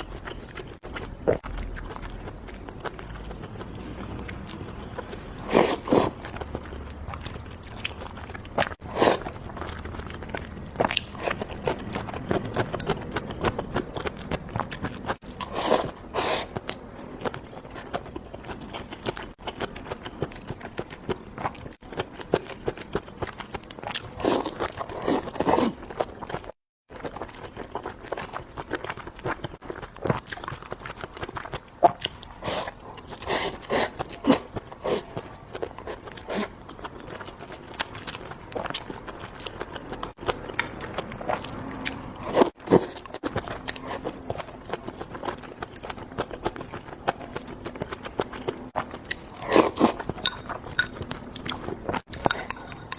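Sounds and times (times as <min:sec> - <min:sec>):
person chewing and crunching food: 0:00.0 - 0:52.9.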